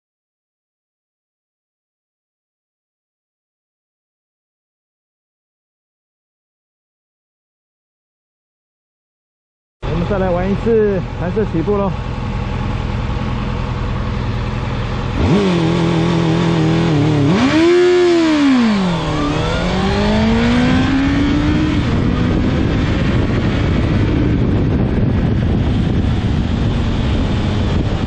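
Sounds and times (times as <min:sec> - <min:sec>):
motorcycle engine revving: 0:09.8 - 0:28.0
wind rush: 0:15.1 - 0:28.0.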